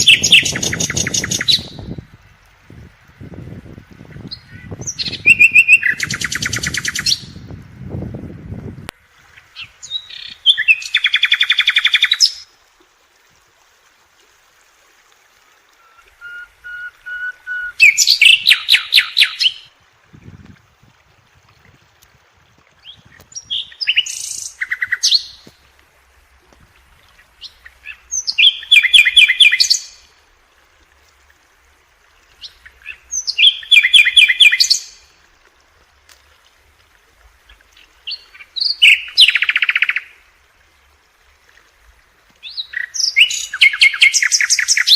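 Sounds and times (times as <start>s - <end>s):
songbird trilling: 0.0s - 1.9s, 4.3s - 7.4s, 15.8s - 19.7s, 27.9s - 29.9s, 32.4s - 34.9s.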